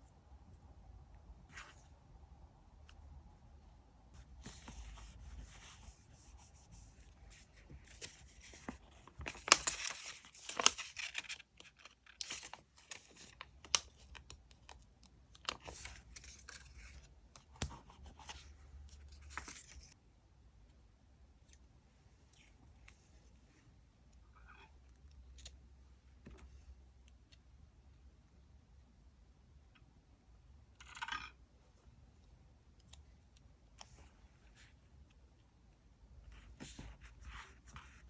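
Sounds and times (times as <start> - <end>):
paper rustling: 4.2 - 13.8.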